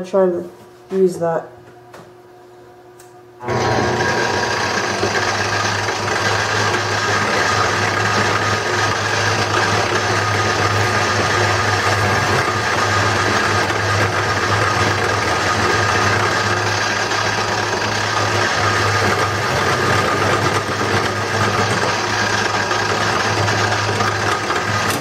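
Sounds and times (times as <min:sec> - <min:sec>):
wood lathe motor running: 0:03.4 - 0:25.0.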